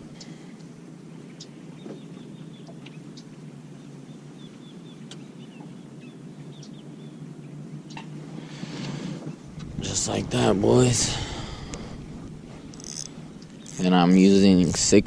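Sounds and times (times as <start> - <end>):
low outdoor background hum: 0.0 - 15.0
bird chirping: 1.3 - 8.0
fishing tackle clicks: 12.6 - 14.0.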